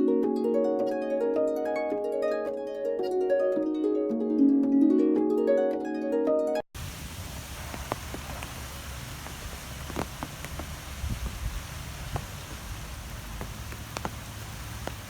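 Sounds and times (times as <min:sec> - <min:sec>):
plucked string music: 0:00.0 - 0:06.6
rushing wind with low rumble: 0:06.8 - 0:15.0.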